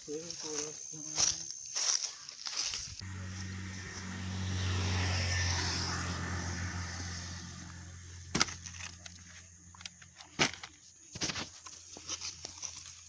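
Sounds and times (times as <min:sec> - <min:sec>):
road noise: 0:00.1 - 0:10.4
vehicle engine passing by: 0:03.0 - 0:09.8.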